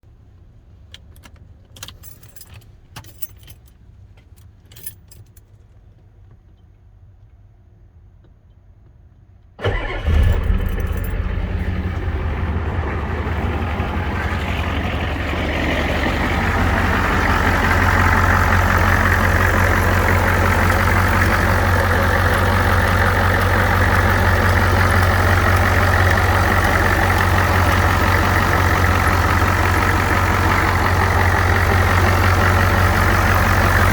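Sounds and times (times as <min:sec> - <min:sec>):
diesel engine starting and idling: 0:09.6 - 0:33.9.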